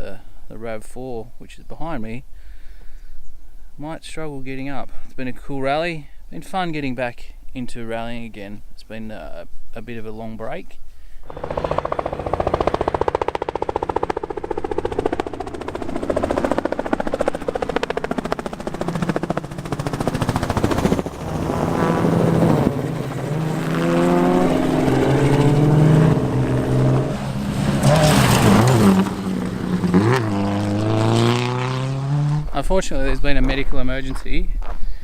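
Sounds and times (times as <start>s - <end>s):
loud engine running: 11.3s - 32.4s.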